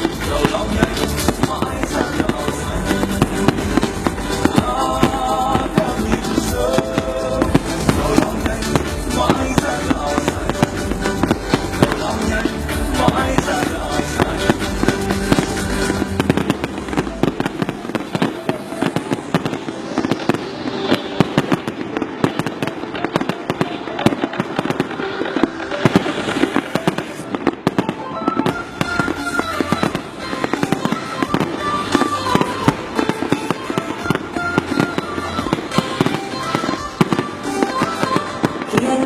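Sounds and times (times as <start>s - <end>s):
fireworks bangs and crackles: 0.0s - 39.0s
music playing: 0.0s - 39.0s.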